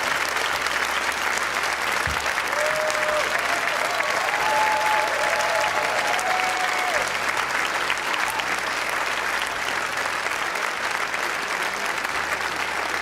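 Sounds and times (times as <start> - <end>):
large audience applauding: 0.0 - 13.0.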